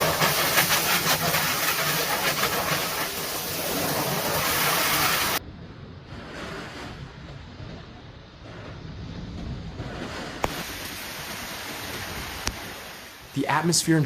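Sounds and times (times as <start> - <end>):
loud steady rushing noise: 0.0 - 5.4.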